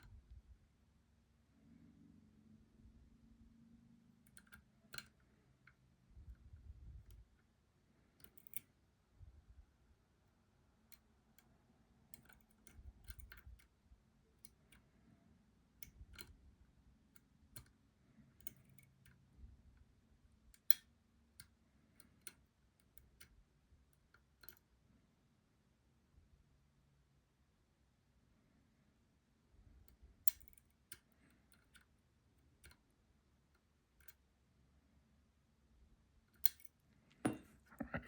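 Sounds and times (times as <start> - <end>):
lock pick clicking: 8.2 - 8.7, 12.1 - 13.7, 15.8 - 16.4, 18.4 - 19.2, 20.5 - 23.4, 24.1 - 24.6, 29.9 - 31.9, 36.3 - 38.0.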